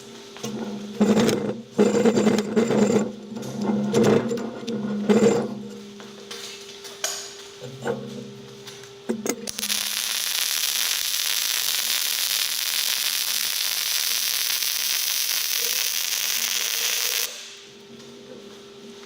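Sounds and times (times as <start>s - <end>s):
welding arc crackling hiss: 9.4s - 17.7s.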